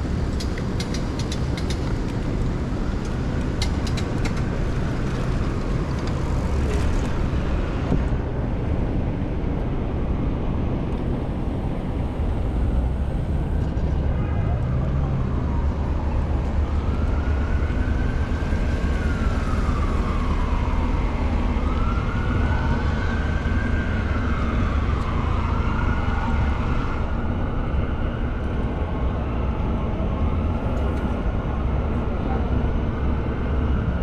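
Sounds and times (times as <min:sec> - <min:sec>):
steady low rumble: 0:00.0 - 0:14.2
emergency siren wailing: 0:11.0 - 0:34.0.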